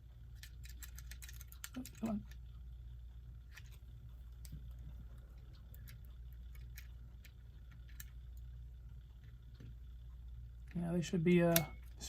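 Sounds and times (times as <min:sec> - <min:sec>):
low steady hum: 0:00.0 - 0:12.0
test probes clicking on metal: 0:11.4 - 0:12.0.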